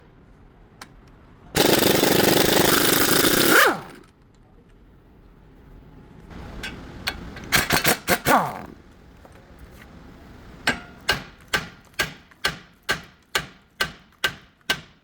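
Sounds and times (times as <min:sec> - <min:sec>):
pneumatic impact wrench hammering: 0:01.6 - 0:04.1, 0:06.6 - 0:08.8.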